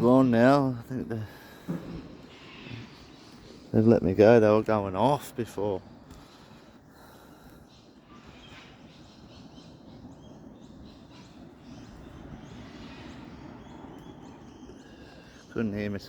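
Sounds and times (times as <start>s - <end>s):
low outdoor hum: 0.0s - 16.0s
bird chirps: 6.2s - 16.0s.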